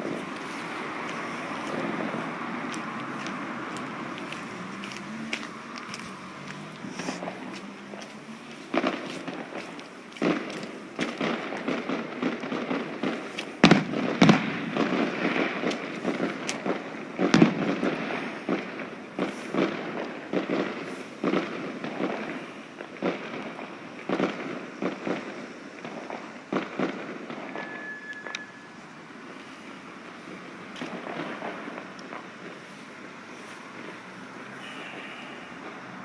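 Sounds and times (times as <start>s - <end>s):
firework bangs: 0.0s - 36.0s
firework crackling: 0.0s - 36.0s
high whistle: 27.5s - 28.9s.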